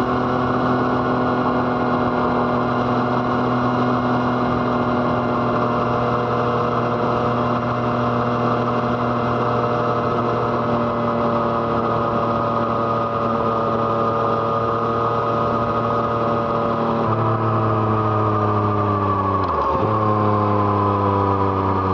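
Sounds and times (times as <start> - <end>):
motorcycle engine running: 0.0 - 21.9.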